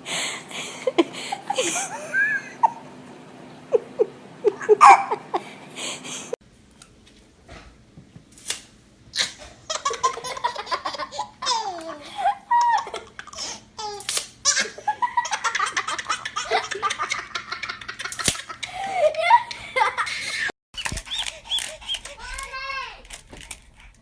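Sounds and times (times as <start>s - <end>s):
baby laughing: 0.1s - 2.9s, 3.7s - 6.4s, 9.2s - 22.3s.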